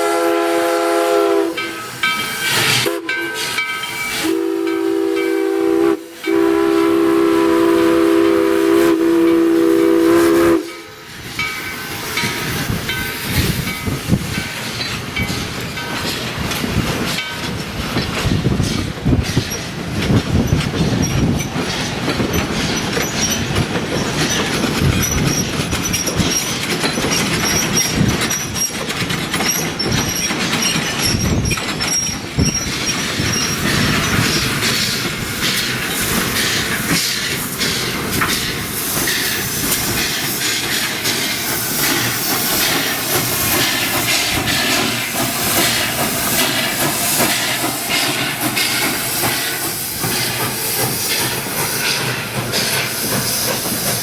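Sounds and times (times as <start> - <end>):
train wheels clacking on track: 0.0 - 54.0
wheel squeal: 24.3 - 34.6
high hiss: 33.2 - 54.0.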